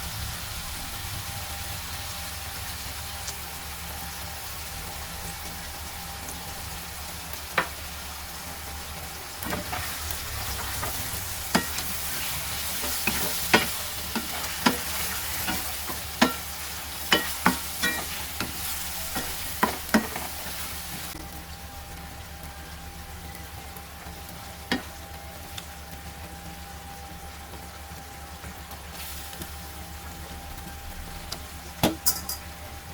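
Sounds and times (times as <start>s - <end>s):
food sizzling in a frying pan: 0.0s - 32.9s
utensil clacking against pan: 10.7s - 12.2s, 12.8s - 20.5s.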